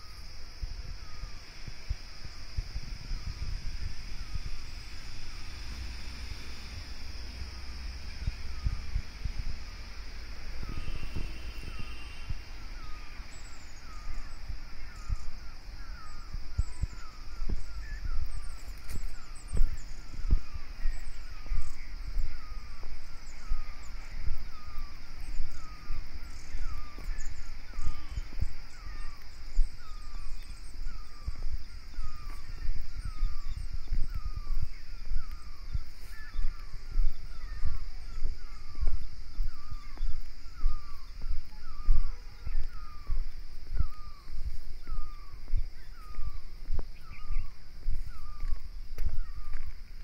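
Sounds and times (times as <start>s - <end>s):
insect drone: 0.0s - 50.0s
bird calling: 7.3s - 49.8s
footsteps on ballast: 33.8s - 50.0s.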